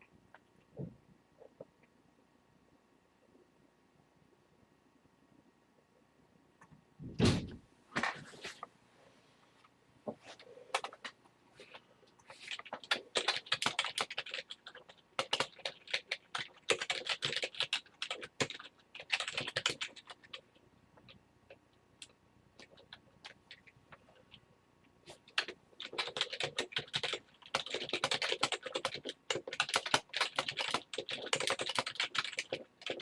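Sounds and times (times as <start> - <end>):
typing on computer keyboard: 10.7 - 11.0, 12.5 - 24.4, 25.3 - 33.0.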